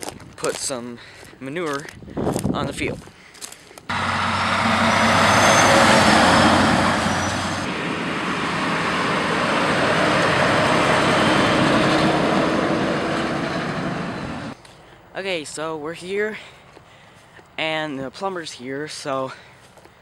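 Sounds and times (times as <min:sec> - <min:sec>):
loud broad rushing noise: 0:03.9 - 0:14.6
low engine hum: 0:03.9 - 0:14.6.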